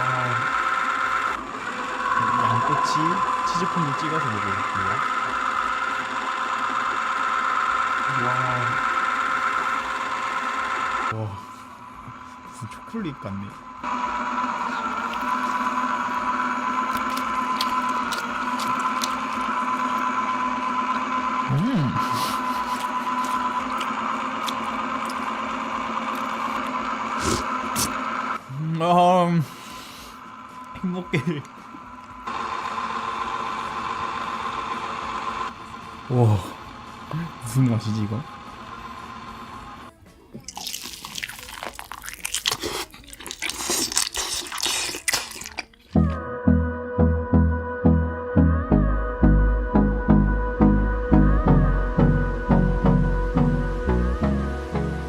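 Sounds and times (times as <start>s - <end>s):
small electric motor humming: 0.0s - 40.0s
wet smacking chewing: 14.9s - 15.7s, 16.8s - 20.1s, 22.1s - 25.4s, 26.1s - 28.0s, 40.4s - 46.0s
crunching bites: 16.7s - 20.2s, 22.6s - 28.0s, 40.4s - 46.0s
sharp eating clicks: 16.8s - 20.2s, 22.0s - 28.0s, 40.4s - 46.1s.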